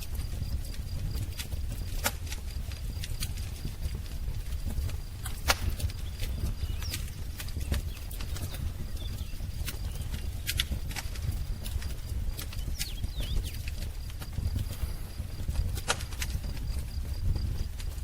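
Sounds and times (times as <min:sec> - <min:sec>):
wood fire crackling: 0:00.0 - 0:18.0
faint bird chirps: 0:05.7 - 0:10.6, 0:12.4 - 0:13.7.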